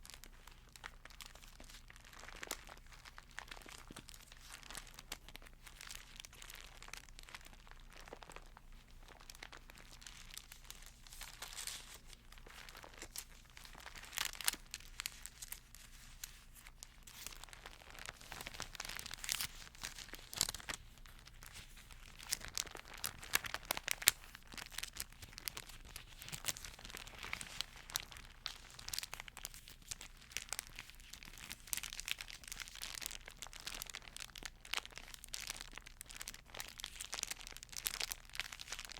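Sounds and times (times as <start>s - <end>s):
thin pages rustling and turning: 8.1s - 32.0s.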